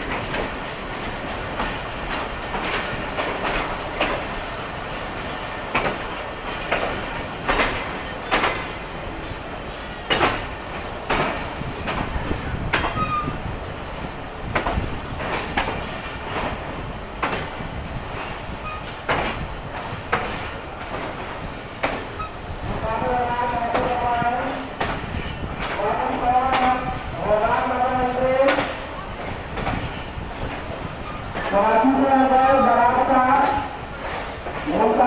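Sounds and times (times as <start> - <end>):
train rumble: 0.0 - 35.0
train wheels knocking over rail joints: 0.0 - 35.0
faint wheel squeals: 12.9 - 13.4.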